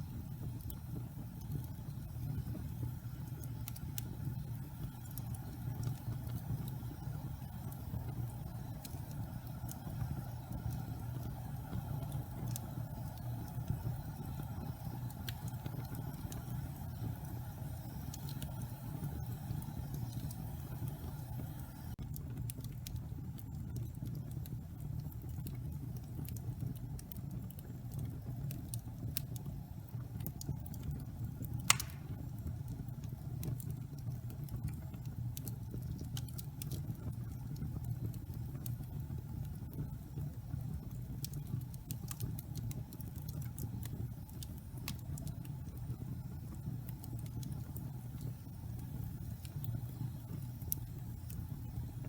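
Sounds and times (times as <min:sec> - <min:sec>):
low fire rumble: 0:00.0 - 0:52.0
wood crackling: 0:31.5 - 0:32.4
loud wood pop: 0:31.7 - 0:32.1.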